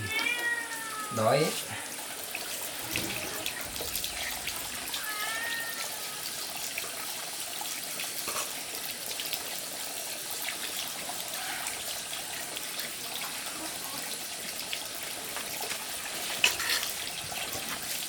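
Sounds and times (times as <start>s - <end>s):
running water splashing: 0.0s - 18.0s
faint animal call: 11.2s - 11.9s.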